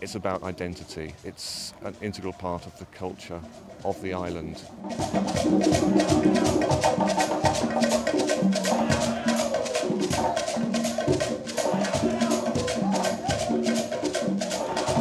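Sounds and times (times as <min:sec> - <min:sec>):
hand drums playing: 0:03.3 - 0:15.0.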